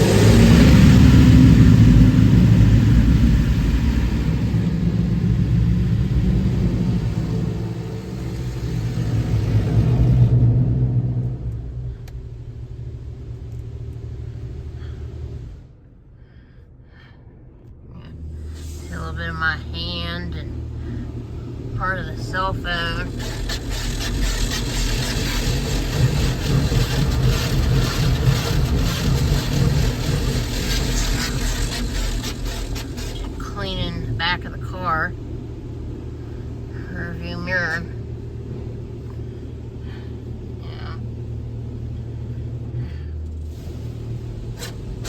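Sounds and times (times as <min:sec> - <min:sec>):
car wash machinery rumbling: 0:00.0 - 0:16.2, 0:17.4 - 0:45.0.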